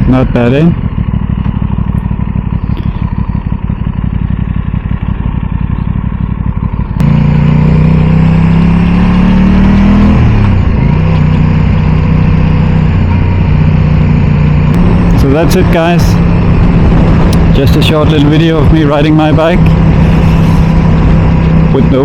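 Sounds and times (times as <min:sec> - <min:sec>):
motorcycle engine running: 0:00.0 - 0:22.0
wind buffeting microphone: 0:14.7 - 0:22.0.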